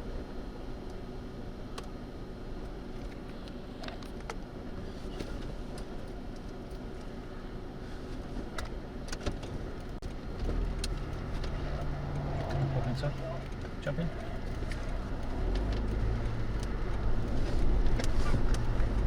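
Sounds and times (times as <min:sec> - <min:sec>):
wind rumbling on microphone: 0:10.2 - 0:19.0.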